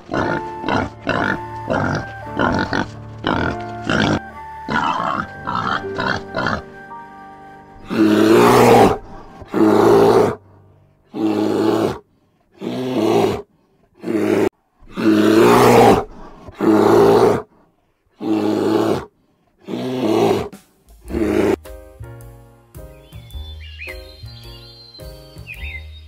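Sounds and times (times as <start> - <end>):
large animal calling: 0.0 - 10.4, 11.1 - 12.0.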